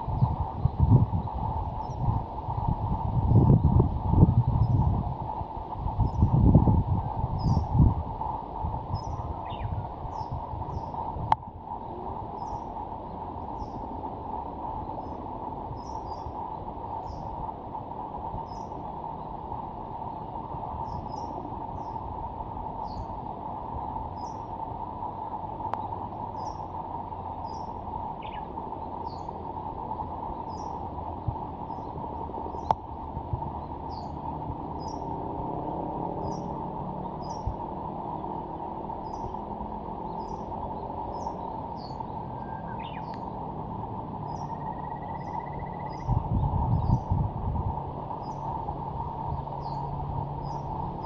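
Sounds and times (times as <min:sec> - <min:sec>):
small birds chirping: 0:00.0 - 0:05.0, 0:05.8 - 0:47.3, 0:48.0 - 0:51.0
steady rushing background: 0:00.0 - 0:51.0
bird whistled notes: 0:41.2 - 0:43.2, 0:44.4 - 0:46.1.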